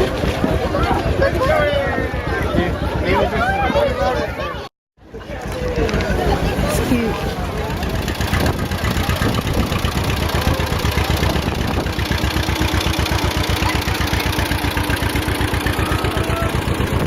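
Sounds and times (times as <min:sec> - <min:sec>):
vehicle engine idling: 0:05.0 - 0:17.0.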